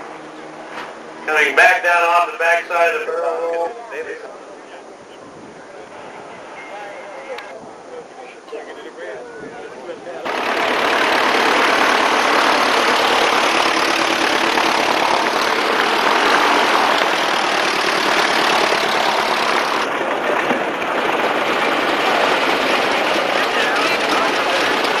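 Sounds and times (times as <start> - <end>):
engine running with fast pulsing: 10.3 - 25.0.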